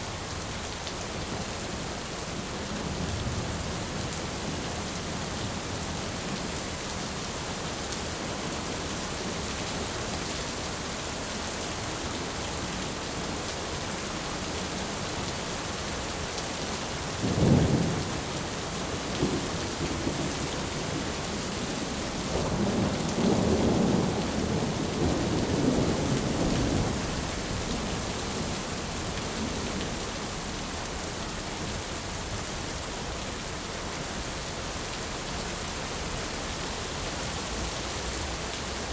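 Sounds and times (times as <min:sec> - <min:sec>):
heavy rain on a tin roof: 0:00.0 - 0:38.9
rolling thunder rumble: 0:22.3 - 0:27.9.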